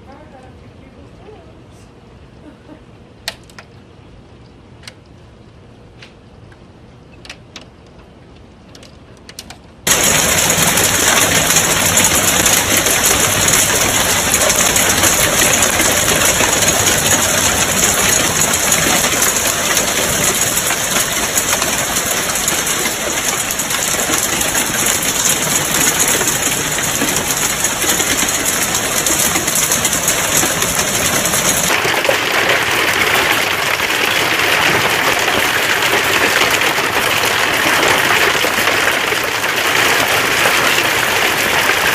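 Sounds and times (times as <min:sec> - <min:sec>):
hail pelting down: 0:09.8 - 0:41.9.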